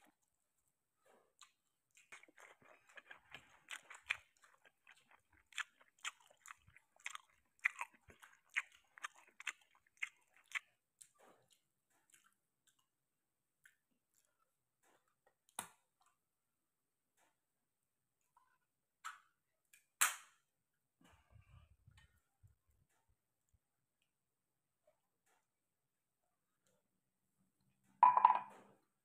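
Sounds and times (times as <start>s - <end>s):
wet chewing and lip smacking: 1.3s - 13.0s, 13.6s - 15.6s.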